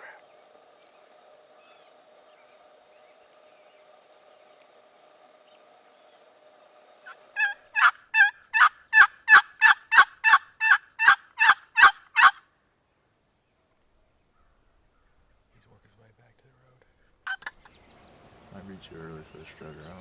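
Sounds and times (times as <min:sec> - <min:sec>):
turkey yelps: 0:07.4 - 0:12.4.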